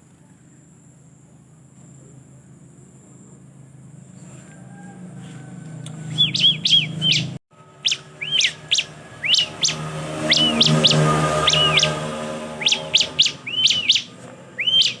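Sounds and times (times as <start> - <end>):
bird chirping quickly: 6.0 - 15.0.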